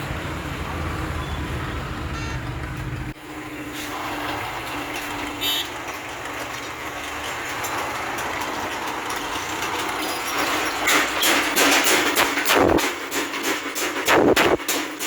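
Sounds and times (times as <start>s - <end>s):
power hammer striking: 10.3s - 15.0s.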